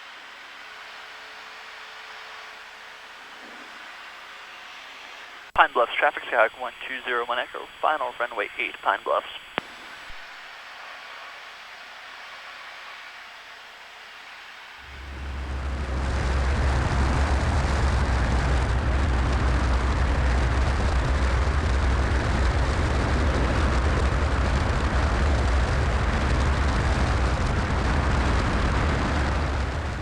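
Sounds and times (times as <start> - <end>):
aircraft engine drone: 0.0 - 30.0
cockpit airflow noise: 2.7 - 10.4, 14.8 - 18.4, 28.0 - 30.0.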